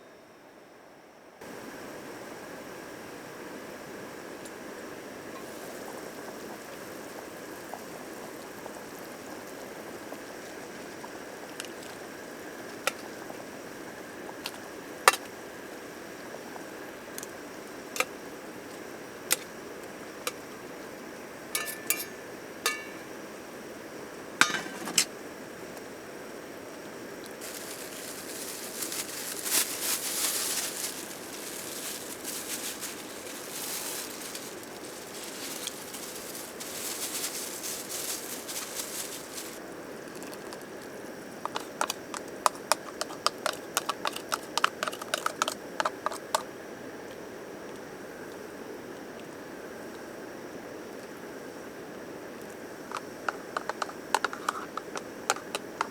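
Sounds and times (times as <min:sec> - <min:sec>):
steady low hiss: 0:01.3 - 0:41.8
glass and tableware clinking: 0:21.6 - 0:23.2, 0:24.4 - 0:25.1.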